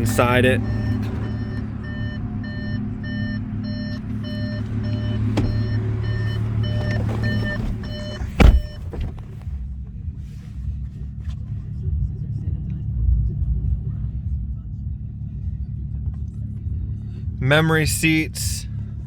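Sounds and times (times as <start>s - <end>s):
car warning chime beeping: 0.0s - 9.2s
steady low hum: 0.0s - 19.0s
loud thump: 4.1s - 9.4s.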